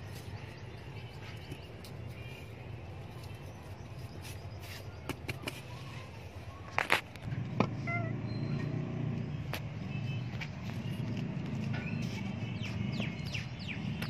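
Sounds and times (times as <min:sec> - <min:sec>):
hands rustling soil and leaves: 0:00.0 - 0:07.1.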